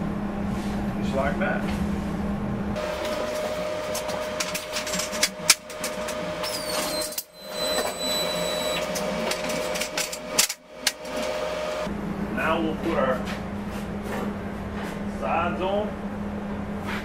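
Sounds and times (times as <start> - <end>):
steady hum: 0.0 - 17.0
thin high ringing tone: 5.8 - 10.2.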